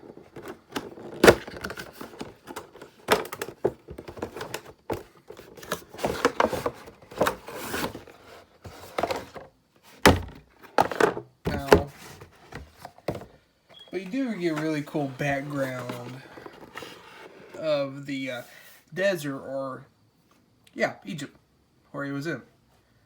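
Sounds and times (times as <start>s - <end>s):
cardboard packaging handling: 0.0s - 17.6s.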